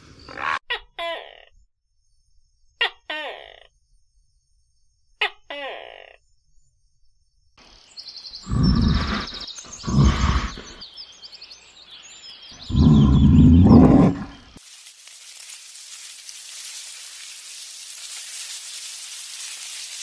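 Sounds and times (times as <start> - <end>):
loud animal calls: 0.1 - 0.6, 8.4 - 10.8, 12.6 - 14.5
small birds chirping: 7.6 - 14.6.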